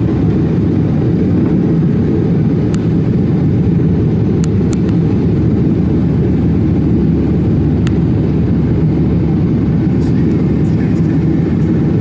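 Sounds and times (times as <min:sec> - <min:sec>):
airliner engine rumble: 0:00.0 - 0:12.0.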